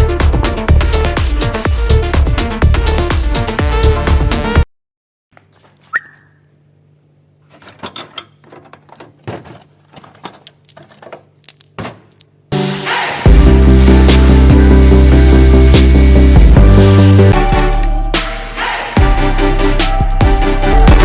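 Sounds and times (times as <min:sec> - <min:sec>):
music: 0:00.0 - 0:04.6, 0:12.5 - 0:21.0.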